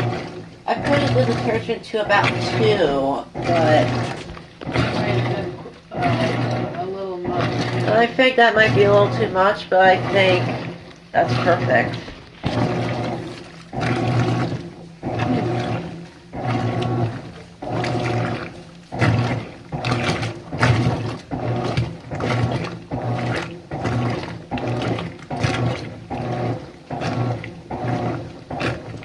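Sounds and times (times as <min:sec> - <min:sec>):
washing machine motor agitating: 0:00.0 - 0:29.0
water sloshing: 0:00.0 - 0:29.0.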